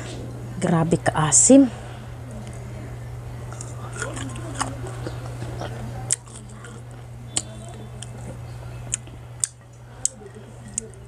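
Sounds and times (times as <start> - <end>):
chewing crisp mango: 3.4 - 11.0
sharp mouth clicks: 3.5 - 6.8, 8.9 - 10.8.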